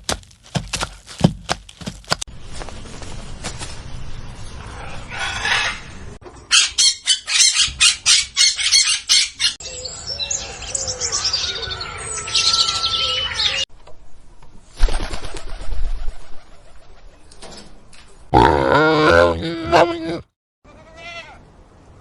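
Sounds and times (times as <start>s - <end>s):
rustling: 0.0s - 4.0s
birds flapping wings: 14.8s - 17.0s.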